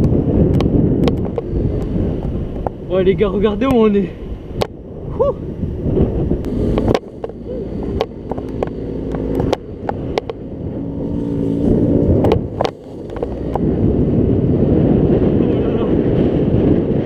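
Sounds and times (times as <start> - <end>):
scooter engine humming: 0.0 - 3.6, 4.2 - 15.4
wind rumble on microphone: 0.0 - 17.0
sharp clicks and knocks: 6.7 - 10.4, 12.2 - 13.6.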